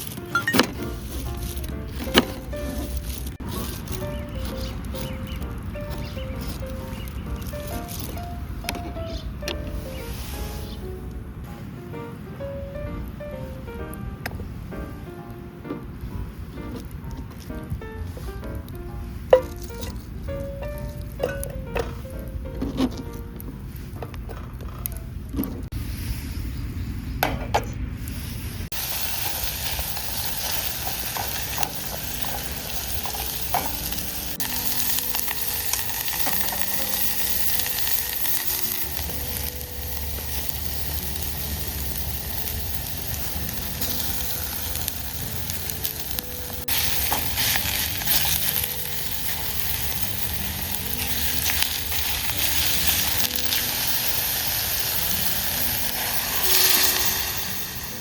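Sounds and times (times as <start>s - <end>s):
food sizzling in a pan: 0.0s - 10.9s, 28.2s - 58.0s.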